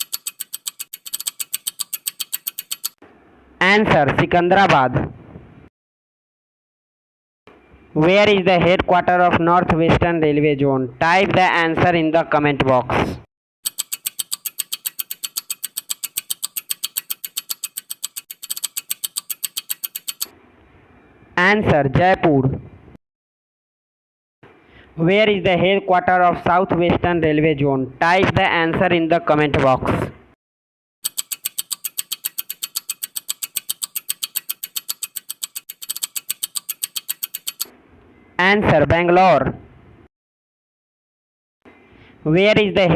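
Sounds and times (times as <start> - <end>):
rapid clock-like ticking: 0.0 - 3.0, 13.6 - 20.3, 31.0 - 37.7.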